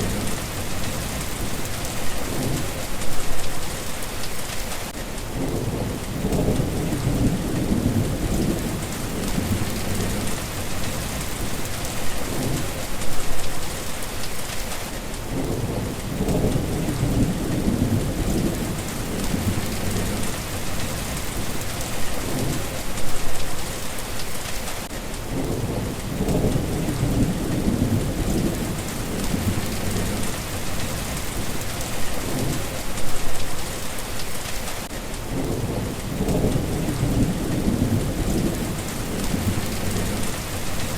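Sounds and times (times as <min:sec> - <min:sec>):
thunder rolling: 0:00.0 - 0:03.5, 0:05.3 - 0:13.5, 0:15.3 - 0:23.4, 0:25.3 - 0:33.5, 0:35.3 - 0:40.9
steady rain: 0:00.0 - 0:40.9.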